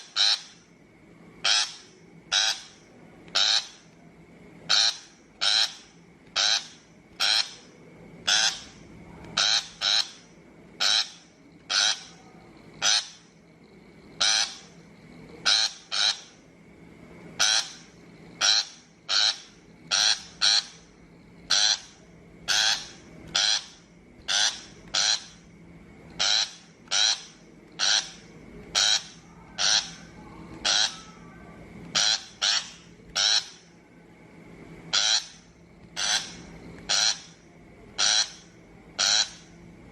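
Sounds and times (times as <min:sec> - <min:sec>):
bird giving harsh grating calls: 0:00.0 - 0:00.6, 0:01.4 - 0:02.8, 0:03.4 - 0:03.8, 0:04.7 - 0:07.6, 0:08.2 - 0:08.8, 0:09.4 - 0:12.2, 0:12.8 - 0:13.3, 0:14.2 - 0:14.7, 0:15.4 - 0:16.4, 0:17.4 - 0:20.9, 0:21.5 - 0:25.4, 0:26.2 - 0:31.2, 0:31.9 - 0:33.7, 0:34.9 - 0:37.4, 0:38.0 - 0:39.5.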